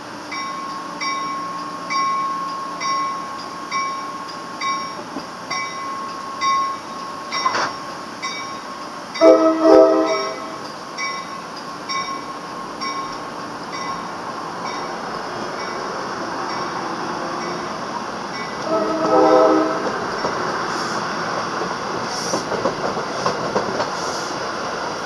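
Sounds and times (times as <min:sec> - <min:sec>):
electric train running: 0:00.0 - 0:25.0
crossing bell ringing: 0:00.2 - 0:20.5
train horn blasts: 0:09.2 - 0:10.6, 0:18.6 - 0:20.0.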